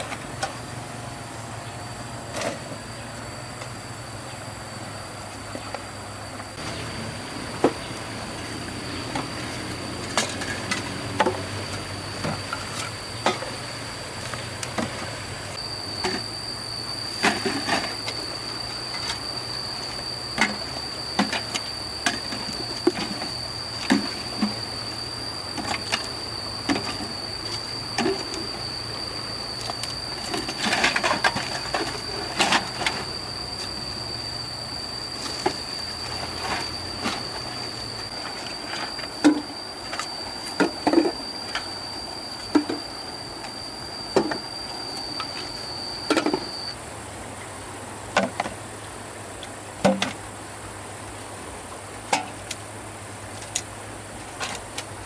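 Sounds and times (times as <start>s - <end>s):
high-pitched drone: 5.6s - 46.8s.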